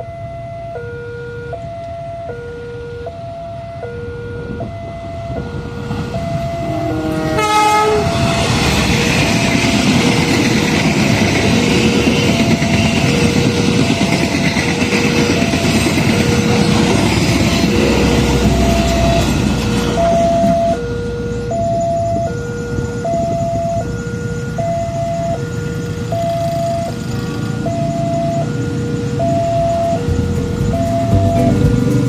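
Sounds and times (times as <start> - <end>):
two-tone crossing warning alarm: 0.0 - 32.0
train wheels rolling on rails: 8.0 - 20.6, 29.2 - 32.0.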